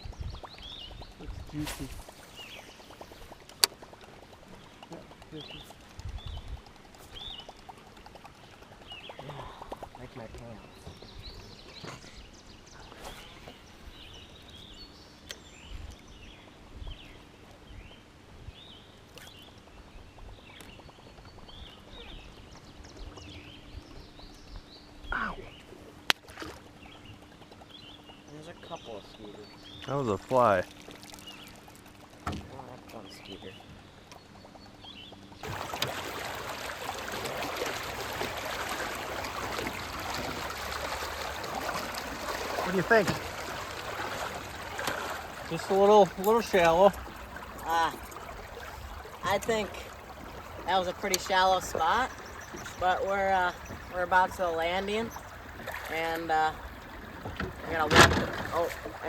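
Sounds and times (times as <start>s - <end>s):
river water burbling over rocks: 35.4s - 59.0s
birds chirping and calling: 38.8s - 59.0s.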